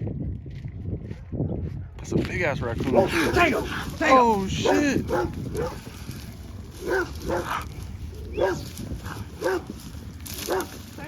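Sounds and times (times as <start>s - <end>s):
dog barking: 2.9s - 3.8s, 4.6s - 5.8s, 6.8s - 7.7s, 8.4s - 9.7s, 10.4s - 10.8s.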